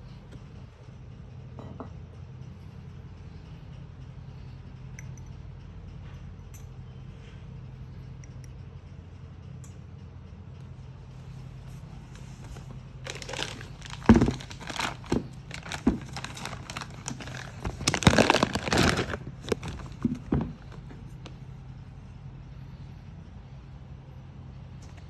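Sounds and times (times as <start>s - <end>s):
low steady hum: 0.0s - 25.0s
packaging crinkling: 11.6s - 21.2s.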